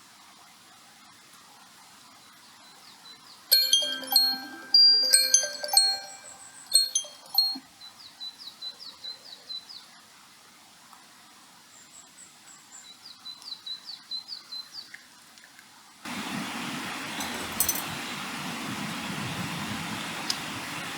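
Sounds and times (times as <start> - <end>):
ringing chime-like strikes: 3.5 - 7.6.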